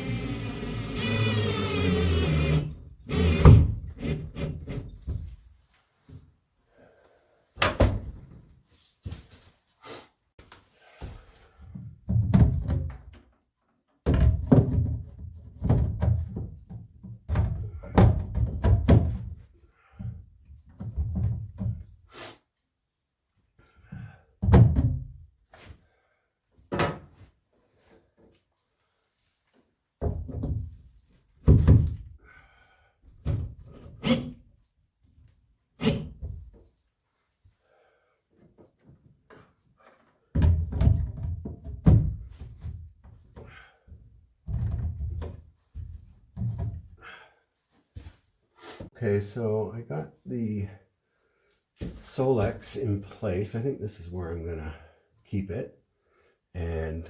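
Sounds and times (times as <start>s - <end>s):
tool whirring: 0.0s - 5.0s
knocks and clunks: 0.0s - 5.4s.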